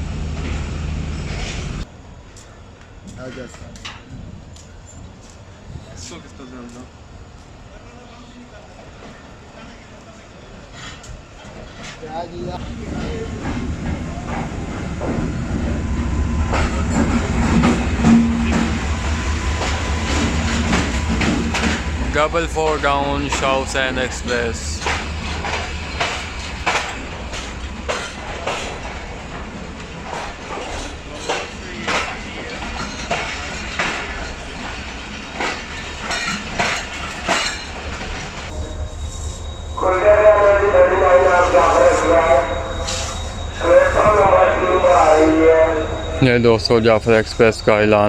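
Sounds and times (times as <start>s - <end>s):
train rumbling past: 0.0s - 48.0s
wheels clacking over rail joints: 10.7s - 38.5s.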